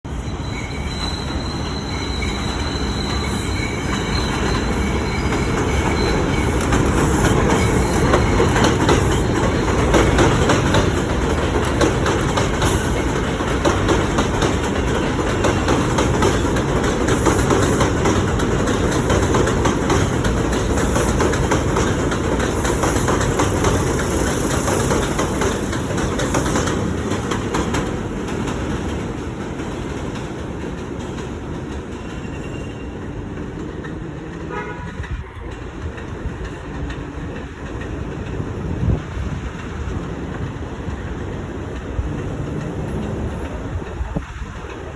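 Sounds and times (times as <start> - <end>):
high wheel squeal: 0.1 - 9.3, 31.9 - 33.2
train wheels rumbling on rails: 0.1 - 44.9
clickety-clack over rail joints: 1.0 - 44.9.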